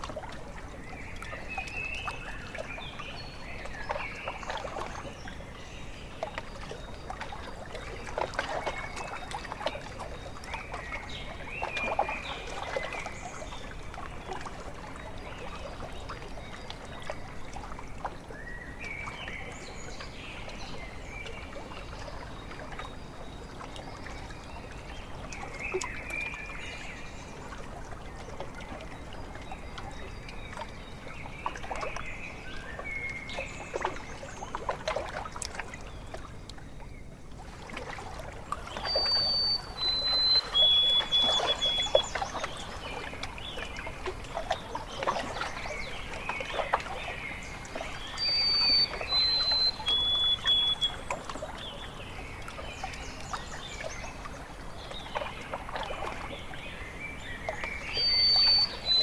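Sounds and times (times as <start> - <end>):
water lapping at shore: 0.0 - 59.0
birds calling: 38.6 - 59.0
bird whistled notes: 38.7 - 42.2, 48.0 - 51.2, 58.0 - 59.0.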